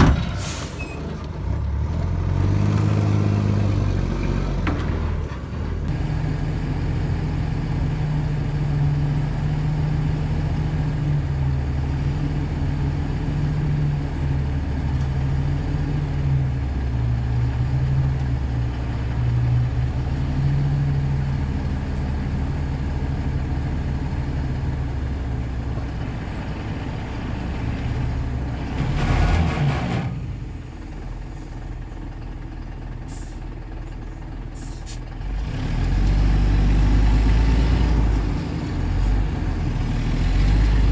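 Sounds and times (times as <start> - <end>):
bulldozer diesel engine under load: 0.0 - 40.9.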